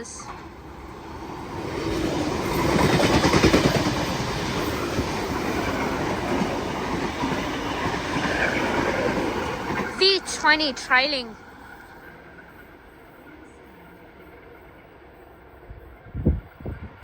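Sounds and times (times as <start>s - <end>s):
train passing at speed: 0.0s - 17.0s
train wheels clattering: 1.4s - 10.7s.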